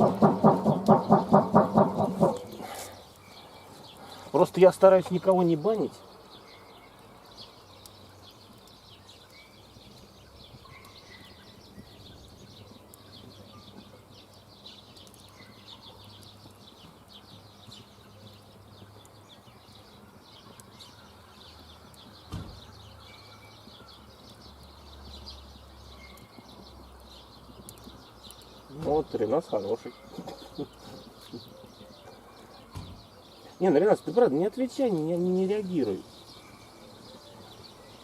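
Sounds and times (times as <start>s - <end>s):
dull thump: 0.0s - 2.4s
faint birdsong: 0.0s - 38.0s.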